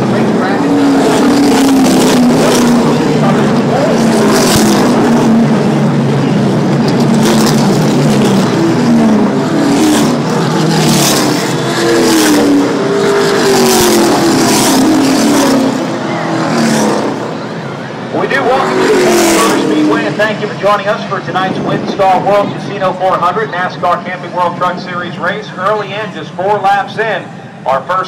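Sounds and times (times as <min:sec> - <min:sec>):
race truck engines passing: 0:00.0 - 0:28.0.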